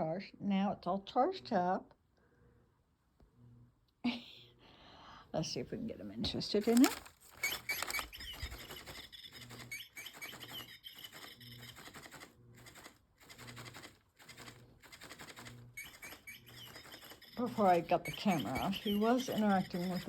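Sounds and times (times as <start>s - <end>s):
electronic bird tweets: 7.4s - 12.2s, 15.3s - 20.0s.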